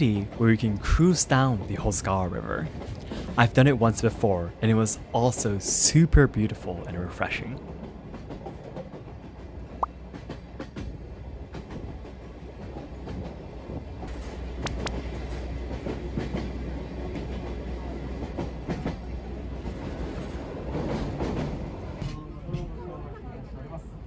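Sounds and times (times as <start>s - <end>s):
rumble of train wheels: 0.0s - 24.0s
clacking over rail joints: 10.1s - 22.8s.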